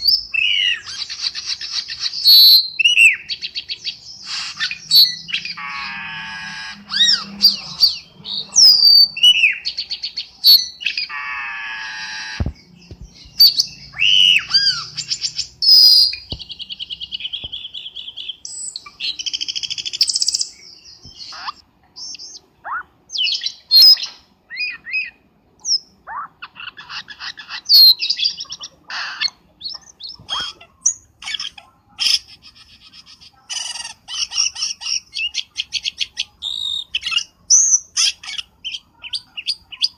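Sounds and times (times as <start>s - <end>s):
bird chirps and whistles: 0.0s - 20.5s, 21.1s - 26.3s
rapid chattering bird trills: 0.0s - 20.5s, 21.1s - 39.9s
harsh buzzy bird notes: 4.2s - 9.7s, 10.6s - 16.3s.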